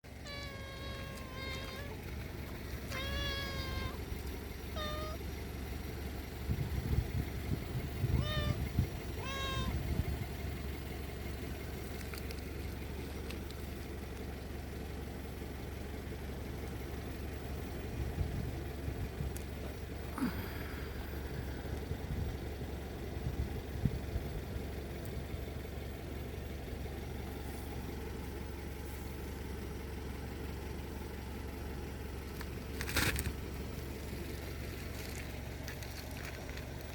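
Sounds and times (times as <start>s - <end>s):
steady low rumble: 0.0s - 36.9s
cat meowing: 0.2s - 2.0s, 2.8s - 4.1s, 4.7s - 5.2s, 8.0s - 9.9s.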